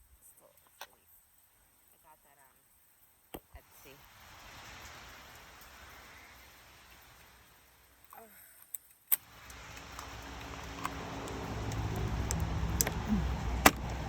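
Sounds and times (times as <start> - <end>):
sharp clicks: 8.7 - 14.0
vehicle engine hum: 9.3 - 14.0.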